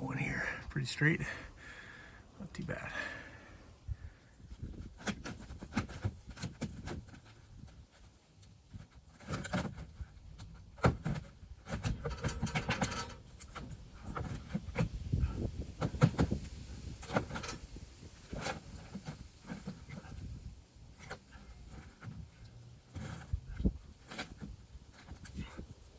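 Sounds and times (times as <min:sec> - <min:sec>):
knocks and thumps on wood: 0:15.8 - 0:16.5.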